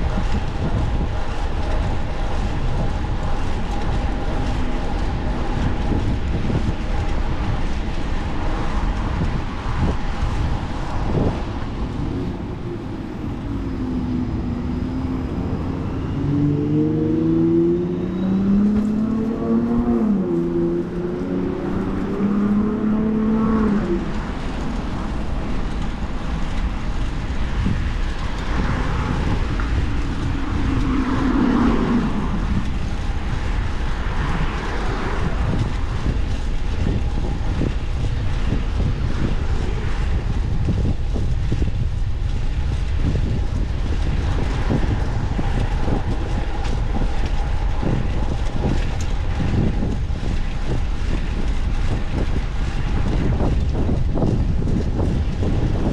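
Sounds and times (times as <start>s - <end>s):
road noise: 0.0s - 55.9s
wind rumbling on microphone: 0.0s - 55.9s
vehicle sweeping past: 11.1s - 24.6s, 28.4s - 36.2s.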